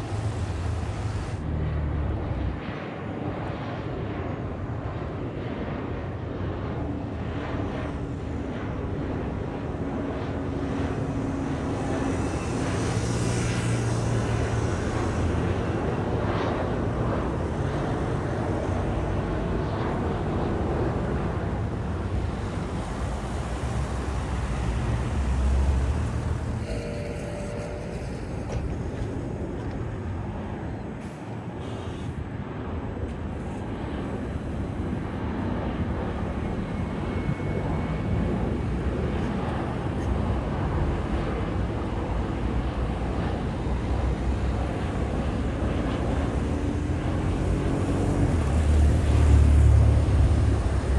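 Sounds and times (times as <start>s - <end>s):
aircraft engines rumbling: 0.0s - 50.9s.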